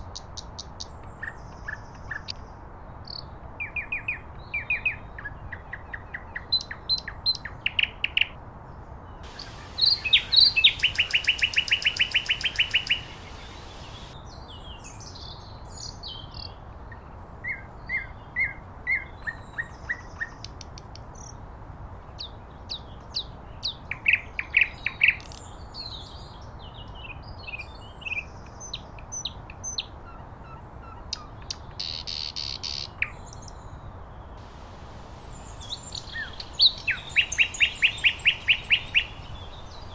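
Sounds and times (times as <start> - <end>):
nightingale singing: 9.2 - 16.6, 22.2 - 33.7, 34.4 - 39.9.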